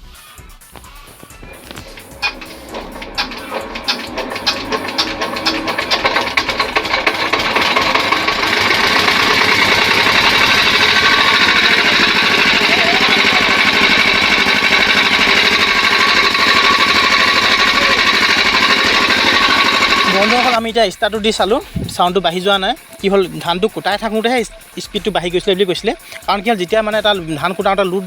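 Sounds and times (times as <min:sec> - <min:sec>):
diesel engine knocking: 0:00.7 - 0:28.0.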